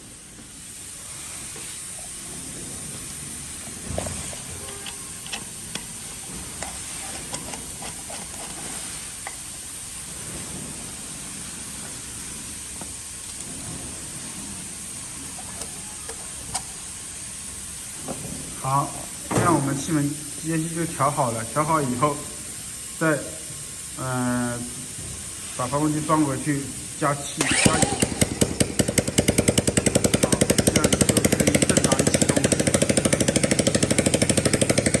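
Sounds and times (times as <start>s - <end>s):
background hiss: 0.0s - 35.0s
dirt bike engine idling: 27.5s - 35.0s.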